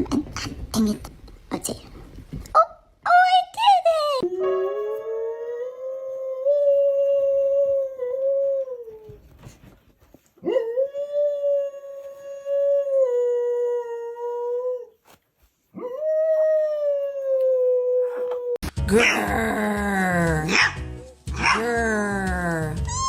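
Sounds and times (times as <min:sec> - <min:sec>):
dog howling: 0:04.2 - 0:09.1, 0:15.8 - 0:19.2.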